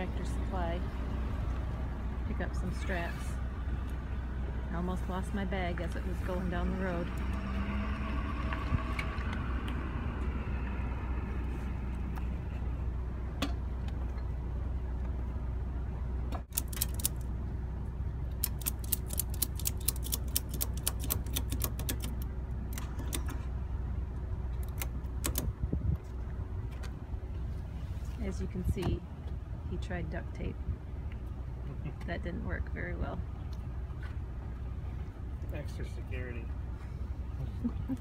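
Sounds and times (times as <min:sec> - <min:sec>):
steady low rumble: 0:00.0 - 0:38.0
ratchet strap clicking: 0:16.5 - 0:17.2, 0:18.4 - 0:23.3.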